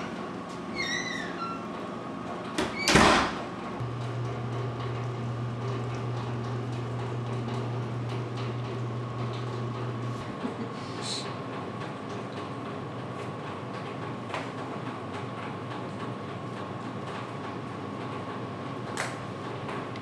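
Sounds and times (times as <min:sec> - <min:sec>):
wooden door shutting: 0:02.5 - 0:03.5.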